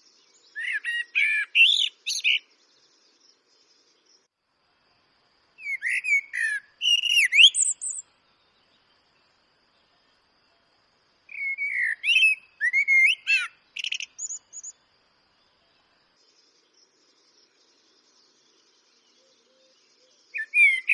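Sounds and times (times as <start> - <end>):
blackbird singing: 0.0 - 4.3, 5.6 - 8.8, 11.3 - 14.8, 15.4 - 20.9.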